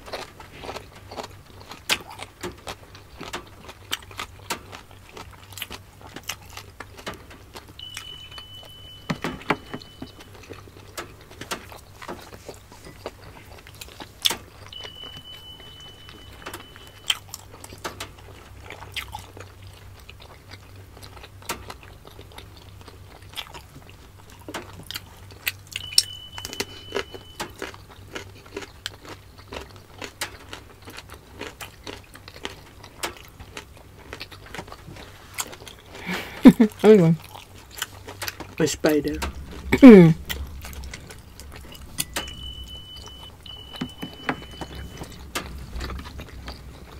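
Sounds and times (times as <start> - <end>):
chewing and biting dumplings: 0.0 - 46.9
thin high tone: 7.8 - 10.6, 14.6 - 17.2, 25.8 - 27.5, 39.0 - 45.2.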